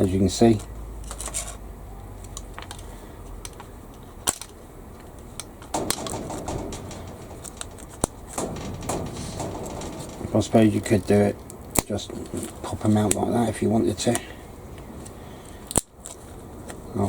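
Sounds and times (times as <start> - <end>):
small knocks: 4.3 - 13.2.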